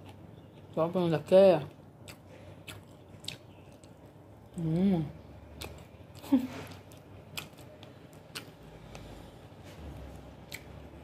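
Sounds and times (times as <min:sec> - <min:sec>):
person chewing wetly: 0:01.7 - 0:04.6, 0:05.4 - 0:09.4, 0:10.0 - 0:11.0.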